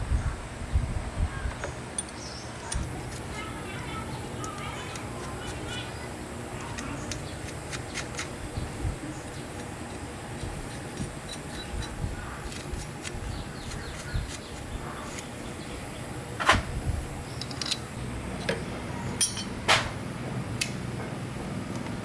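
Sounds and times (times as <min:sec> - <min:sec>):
metal tools knocking and clinking: 0:02.0 - 0:02.3, 0:17.4 - 0:18.6, 0:19.2 - 0:19.8.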